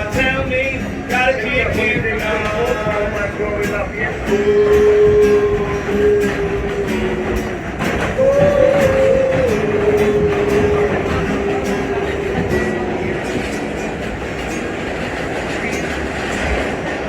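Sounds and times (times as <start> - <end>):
train wheels clacking over rail joints: 0.0 - 17.0
train motor whine: 4.3 - 14.5.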